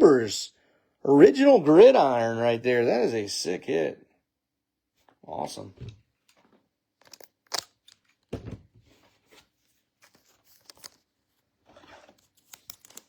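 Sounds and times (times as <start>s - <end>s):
foil wrappers crinkling and tearing: 10.0s - 11.1s
cards clicking together: 12.4s - 13.0s.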